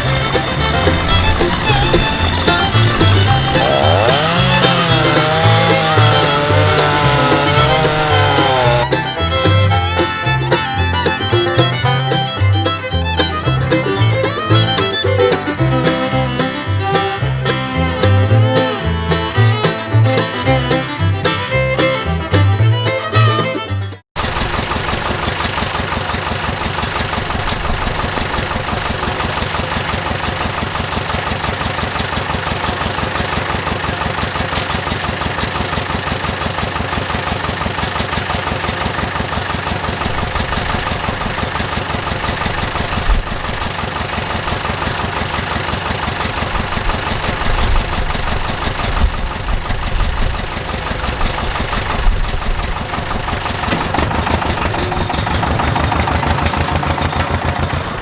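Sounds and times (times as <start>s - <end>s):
heavy low thumps: 0.0s - 22.8s
dumper engine running: 0.0s - 58.0s.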